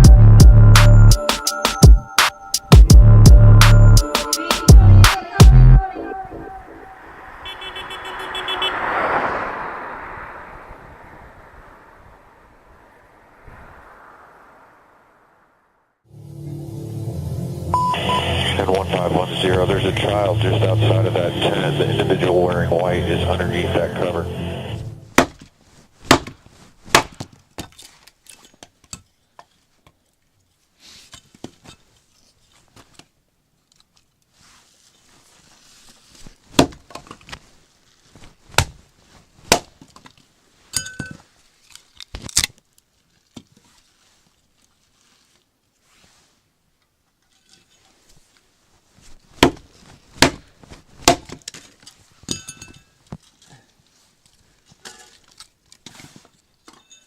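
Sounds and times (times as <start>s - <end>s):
firewood being chopped: 25.1s - 27.4s, 36.6s - 37.0s, 49.4s - 51.6s.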